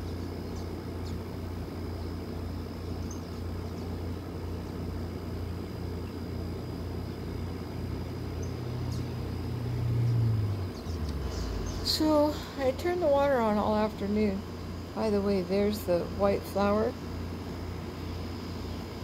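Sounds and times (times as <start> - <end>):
faint high whine: 0.0 - 19.0
low rumble: 9.3 - 14.7.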